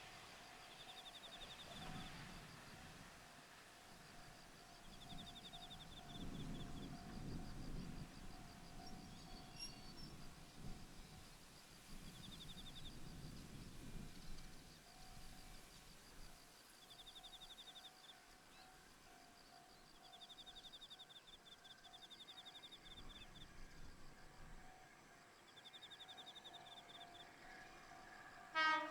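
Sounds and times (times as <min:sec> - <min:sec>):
high-pitched insect trill: 0:03.9 - 0:18.6.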